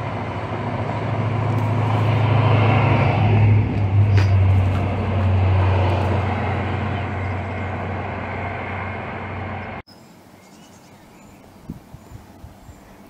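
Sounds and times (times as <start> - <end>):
train rumbling along track: 0.0 - 9.8
faint bird chirps: 9.9 - 13.0.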